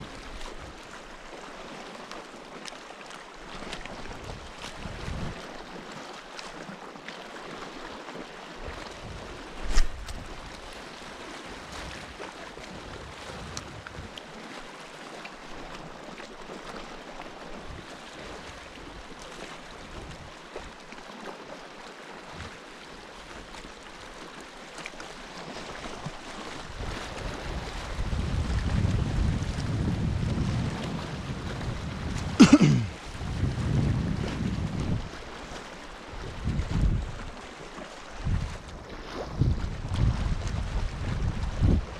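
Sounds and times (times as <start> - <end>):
wind on microphone: 3.6 - 5.6, 8.6 - 14.2, 19.8 - 20.4, 26.5 - 41.9
water washing on rocks: 8.8 - 11.0, 31.6 - 33.8
water washing against rock: 8.8 - 14.0, 24.2 - 41.9.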